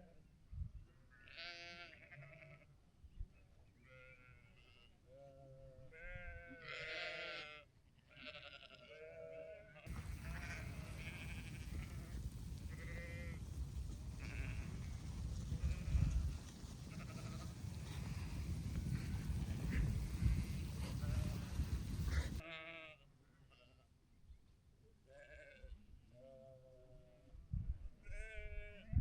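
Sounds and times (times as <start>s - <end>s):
sheep bleating: 1.1s - 2.7s, 3.8s - 23.8s.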